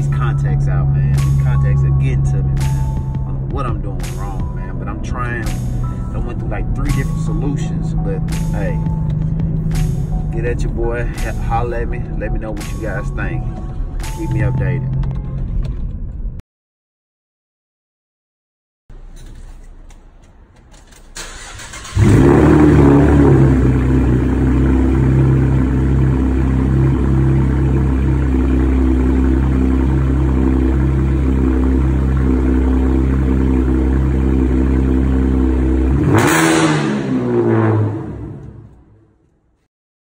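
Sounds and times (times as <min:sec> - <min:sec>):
car engine cranking: 0:00.1 - 0:11.8, 0:18.9 - 0:38.8
engine winding down: 0:20.5 - 0:38.9
loud car engine idling: 0:21.3 - 0:38.6
engine revving blip: 0:35.9 - 0:38.8.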